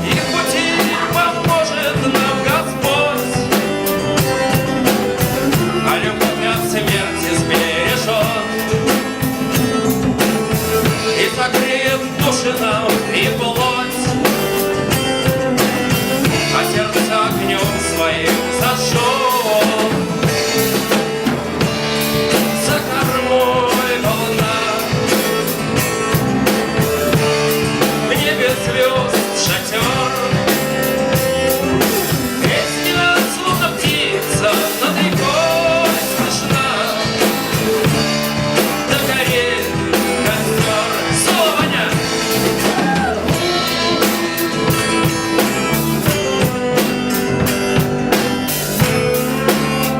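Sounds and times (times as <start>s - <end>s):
bending lead guitar line: 0.0s - 49.9s
drums: 0.0s - 49.9s
sustained guitar: 0.0s - 49.9s.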